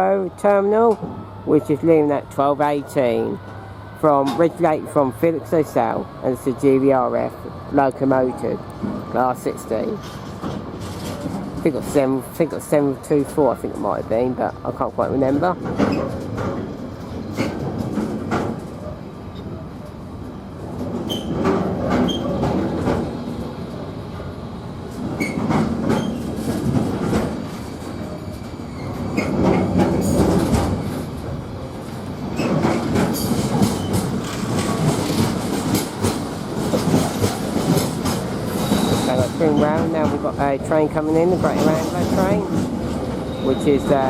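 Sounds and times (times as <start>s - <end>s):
freight train rumble: 0.0s - 44.0s
train wheels clicking over rail joints: 8.1s - 12.1s, 15.3s - 18.9s, 20.6s - 23.5s, 24.9s - 44.0s.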